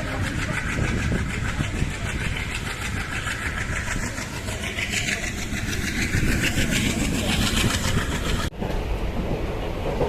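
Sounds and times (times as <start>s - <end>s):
train rumble and rattle: 0.0s - 10.0s.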